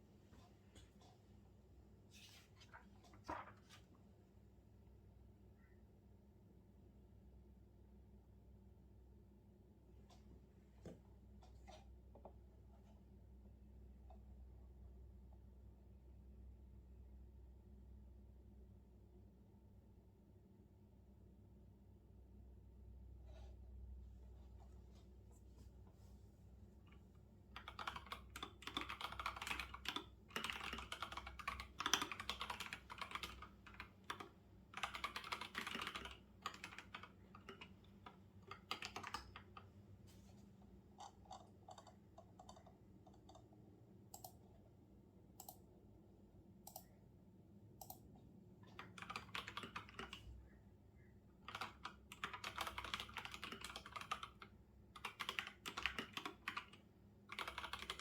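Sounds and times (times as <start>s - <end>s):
computer keyboard typing: 27.6s - 39.7s, 41.0s - 44.5s, 48.6s - 50.3s, 51.4s - 58.0s.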